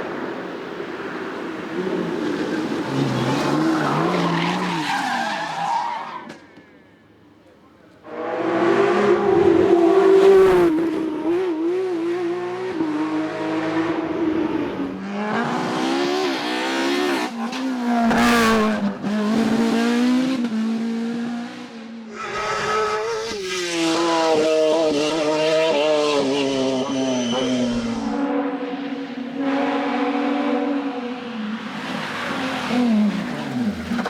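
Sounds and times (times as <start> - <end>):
racing car engines at full throttle: 8.0 - 34.0.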